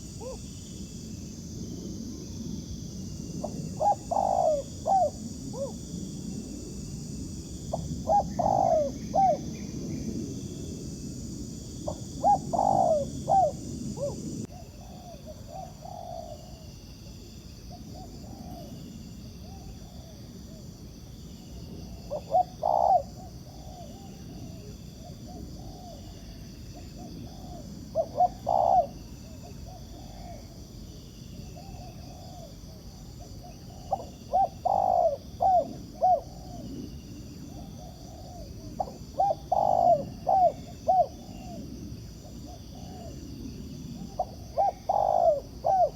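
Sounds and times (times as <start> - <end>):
doves cooing: 3.4 - 5.9, 7.7 - 10.0, 11.9 - 16.6, 22.1 - 26.1, 27.0 - 30.6, 31.6 - 45.9.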